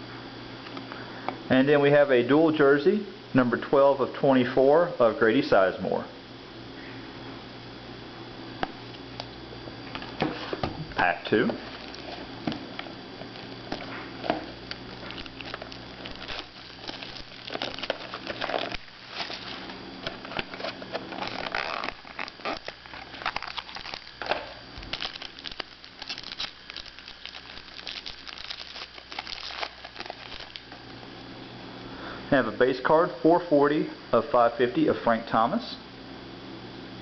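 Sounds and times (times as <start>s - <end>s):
card pack wrapper crinkling: 11.6s - 30.9s
cards rustling and clicking: 13.3s - 30.8s.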